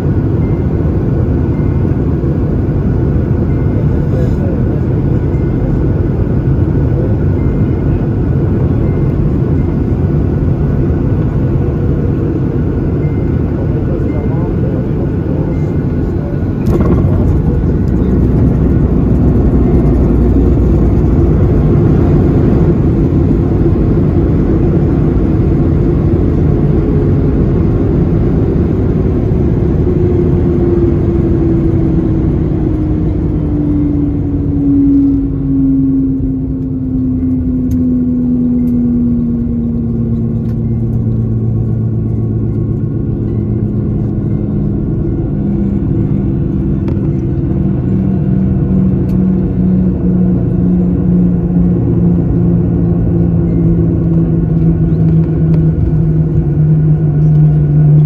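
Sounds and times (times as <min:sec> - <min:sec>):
jet engine whine falling: 0:00.0 - 0:58.0
loud steady cabin rumble: 0:00.0 - 0:58.0.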